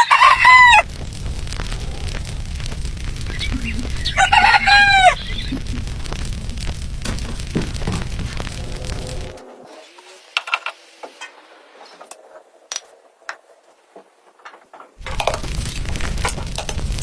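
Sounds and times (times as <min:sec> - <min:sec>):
loud noisy sound: 0:00.0 - 0:09.9, 0:15.0 - 0:17.0.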